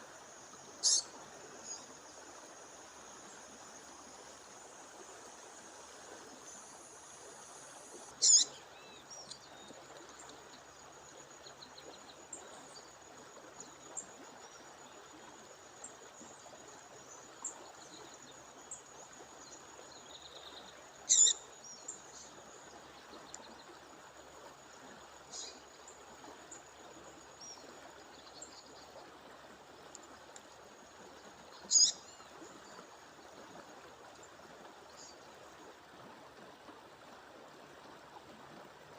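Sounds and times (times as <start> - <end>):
songbird sharp high call: 0.8 - 1.1, 8.2 - 8.6, 21.1 - 21.4, 31.7 - 32.0
faint bird chirps: 0.8 - 1.9, 8.2 - 9.8, 20.1 - 22.3, 31.6 - 32.8.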